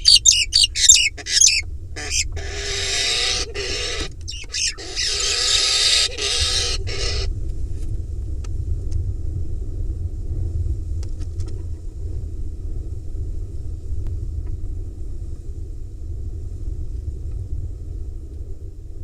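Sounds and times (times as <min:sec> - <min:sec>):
owl nestling hissing calls: 0:00.0 - 0:07.3
low rumble: 0:00.0 - 0:11.1.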